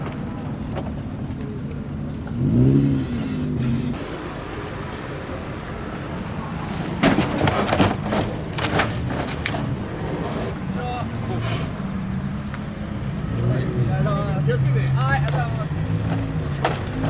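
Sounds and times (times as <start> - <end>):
sharp knocks and clatter: 7.0 - 9.7, 15.2 - 17.0.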